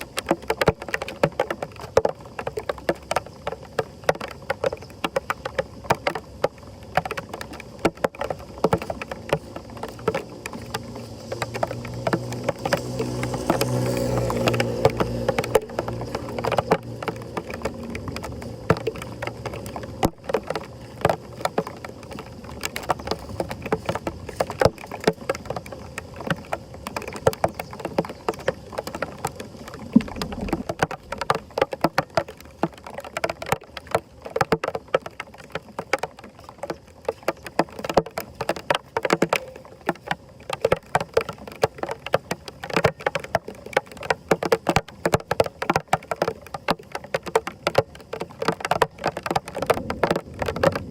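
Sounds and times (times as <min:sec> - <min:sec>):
sharp knocks and clatter: 0:00.0 - 0:50.9
water splashing and sloshing: 0:00.0 - 0:50.9.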